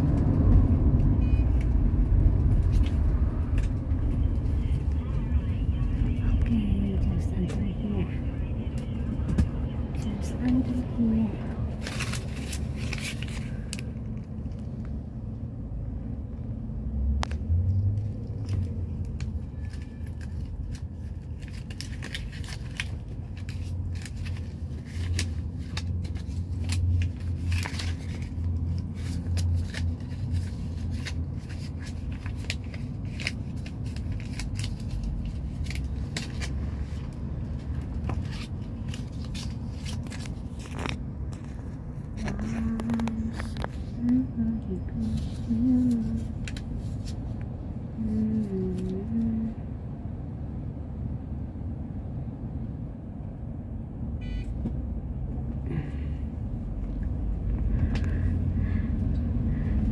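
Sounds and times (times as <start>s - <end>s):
small clicks and scrapes: 38.0s - 43.9s.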